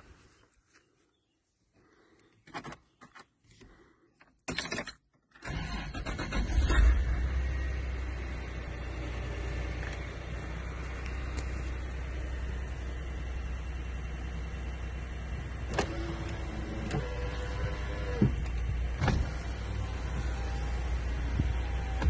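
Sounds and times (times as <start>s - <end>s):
car engine idling: 5.5s - 22.0s.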